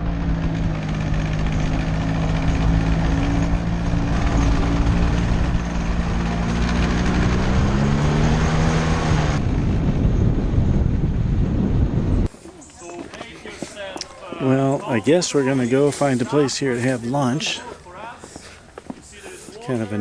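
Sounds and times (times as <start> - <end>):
motor scooter engine running: 0.0 - 10.3
wind rumble on microphone: 0.0 - 12.3.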